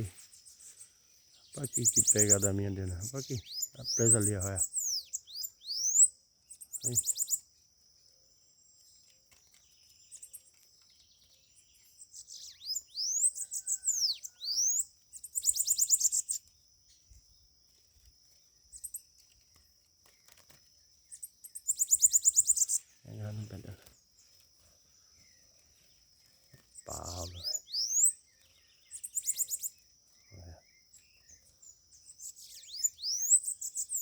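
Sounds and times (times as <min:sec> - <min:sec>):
birds calling with buzzy trills: 0:00.0 - 0:34.0.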